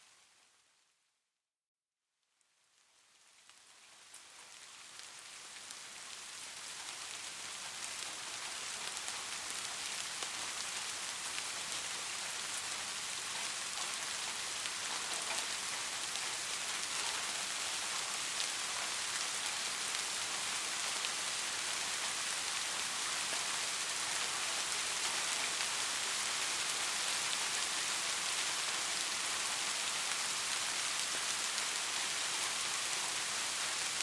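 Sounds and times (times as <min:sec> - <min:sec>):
steady rain falling: 0:02.2 - 0:34.0
rain drop ticks: 0:13.3 - 0:20.2.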